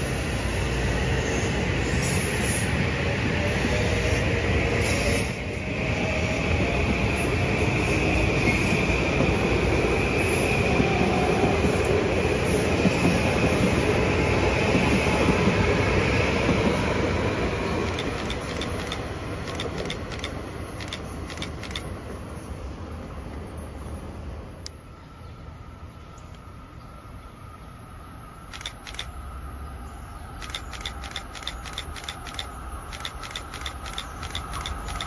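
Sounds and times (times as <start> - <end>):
train rumbling on rails: 0.0 - 35.0
sharp clicks: 17.9 - 21.9, 28.5 - 29.2, 30.4 - 35.0.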